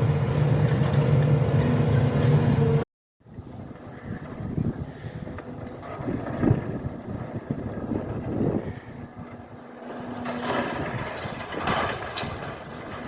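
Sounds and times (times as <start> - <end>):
engine tone: 0.0 - 12.9
demolition machinery rumbling: 0.0 - 13.0
wind on microphone: 3.2 - 13.0.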